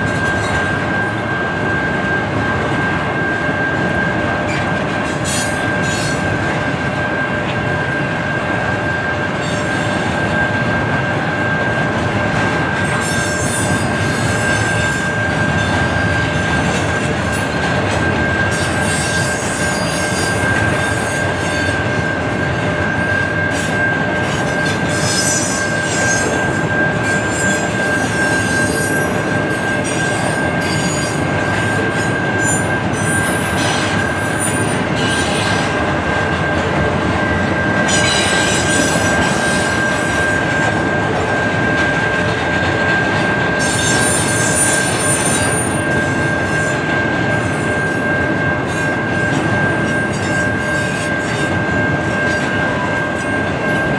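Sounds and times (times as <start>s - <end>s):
railroad cars rolling: 0.0s - 53.9s
wheel squeal: 4.5s - 6.4s, 12.7s - 21.9s, 22.9s - 35.8s, 37.8s - 40.6s, 43.6s - 53.9s.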